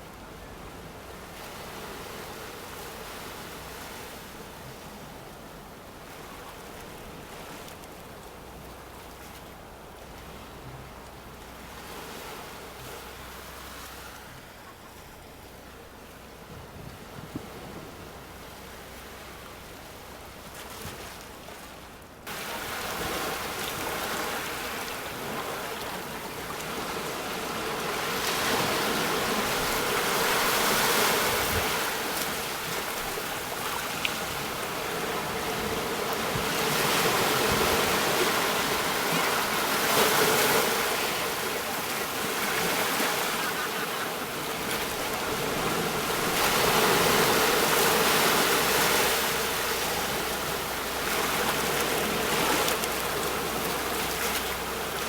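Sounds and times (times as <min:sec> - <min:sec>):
sea waves breaking on shore: 0:11.2 - 0:55.0.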